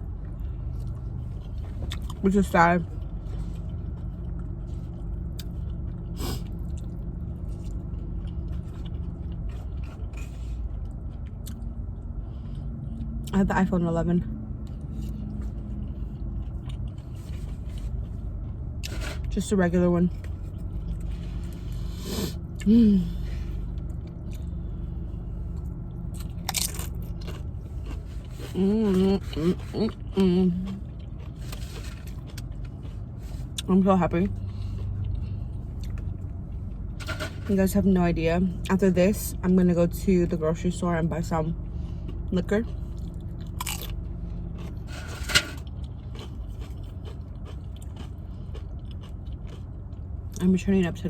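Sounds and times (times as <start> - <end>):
chewing food: 0.0 - 13.3, 14.5 - 19.3, 20.0 - 37.0, 41.6 - 50.5
steady low hum: 0.0 - 51.0
loud crunch: 26.1 - 28.6.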